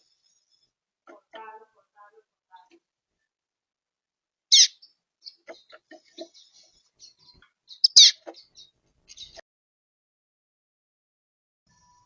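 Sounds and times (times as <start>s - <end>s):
songbirds chirping: 4.5s - 9.4s.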